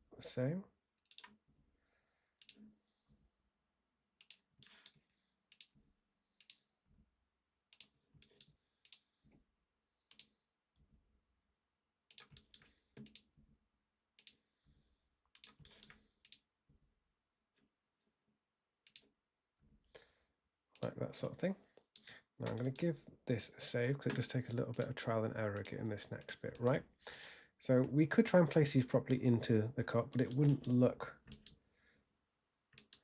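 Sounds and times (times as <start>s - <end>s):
mouse and keyboard clicks: 22.0s - 22.8s, 30.1s - 31.6s, 32.8s - 33.0s.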